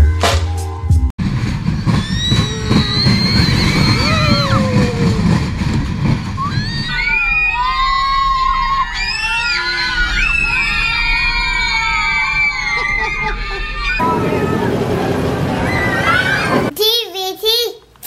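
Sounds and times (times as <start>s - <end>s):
ride low rumble: 1.2s - 6.9s
people squealing: 1.7s - 16.7s.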